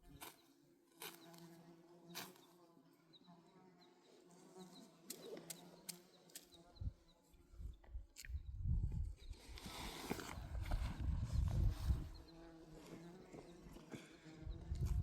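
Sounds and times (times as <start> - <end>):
faint insect buzzing: 0.0 - 7.3, 10.6 - 15.0.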